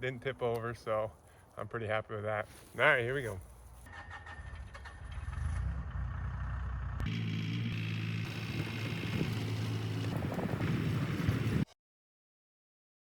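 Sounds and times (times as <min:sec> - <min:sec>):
excavator diesel engine running: 0:05.7 - 0:11.6.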